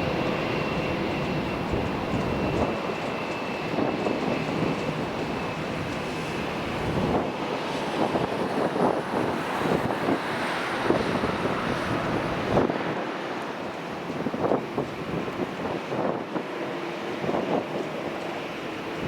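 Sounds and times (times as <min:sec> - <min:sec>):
aircraft engines rumbling: 0:00.0 - 0:19.0
wind buffeting microphone: 0:00.0 - 0:19.0.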